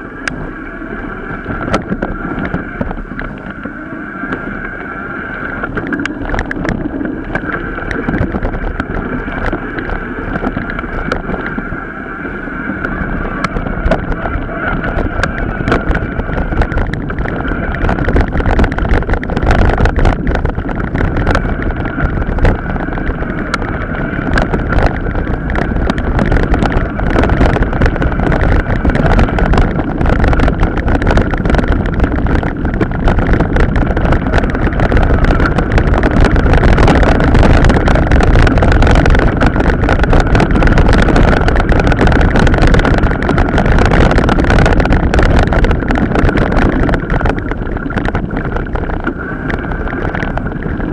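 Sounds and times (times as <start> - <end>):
steady whine: 0.0 - 50.9
wind buffeting microphone: 0.0 - 50.9
bike rattling and knocking: 13.4 - 50.9.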